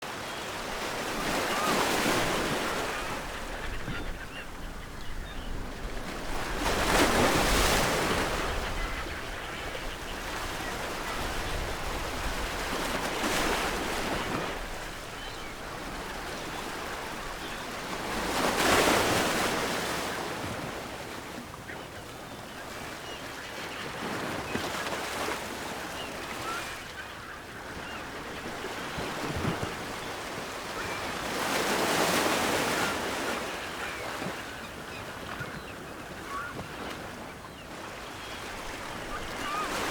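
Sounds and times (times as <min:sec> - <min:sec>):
ocean waves crashing: 0:00.6 - 0:04.4.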